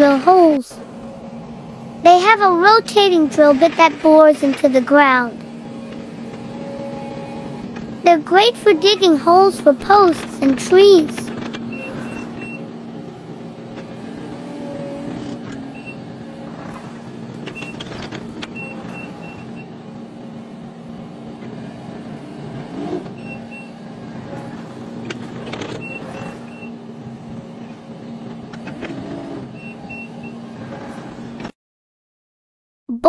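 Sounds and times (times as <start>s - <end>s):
loader engine humming: 0.0s - 30.5s.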